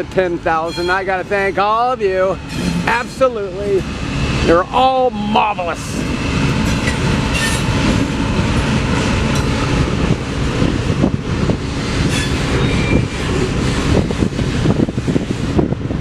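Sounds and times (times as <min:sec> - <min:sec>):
train wheels rumbling on rail: 0:00.0 - 0:16.0
faint wheel squeal: 0:12.1 - 0:13.2.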